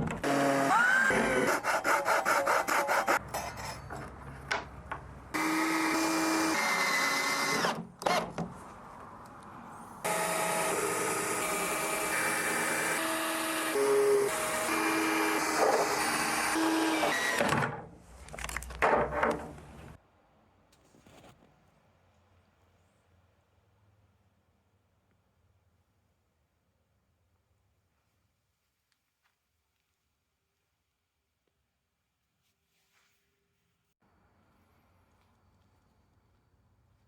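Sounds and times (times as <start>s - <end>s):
power tool motors running: 5.4s - 7.8s, 10.1s - 17.5s.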